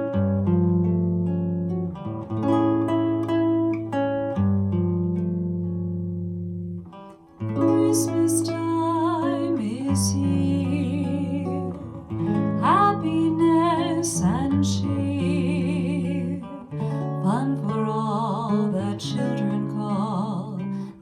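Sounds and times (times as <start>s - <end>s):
acoustic guitar slow chords: 0.0s - 21.0s
held melody with vibrato: 7.6s - 20.5s.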